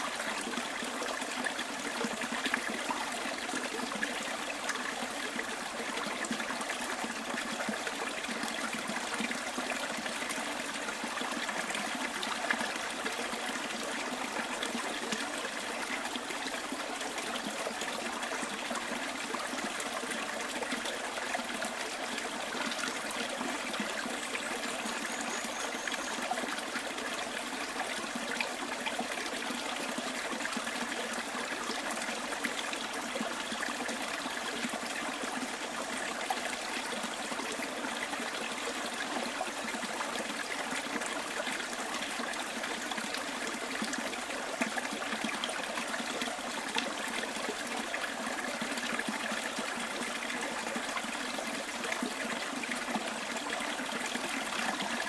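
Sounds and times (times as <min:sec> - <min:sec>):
stream babbling: 0:00.0 - 0:55.0
faint high chirp: 0:24.5 - 0:26.4.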